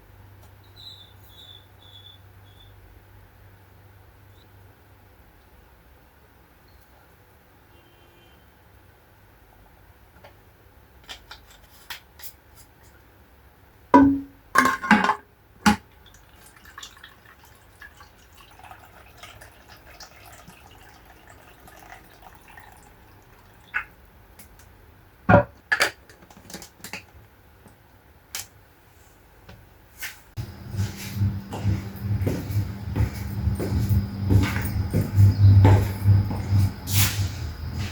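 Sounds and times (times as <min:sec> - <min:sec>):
steady low hum: 0:30.4 - 0:37.9.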